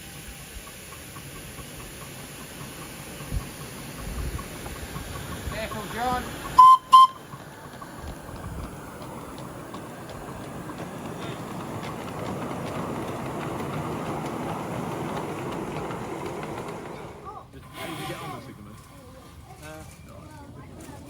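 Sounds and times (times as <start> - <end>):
miniature train wheels rumbling: 0.0 - 21.0
light clicks on rails: 0.6 - 17.2.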